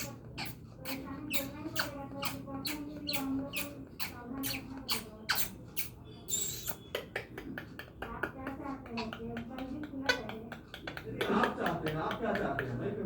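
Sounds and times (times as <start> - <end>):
parrot squawking: 0.0 - 6.9.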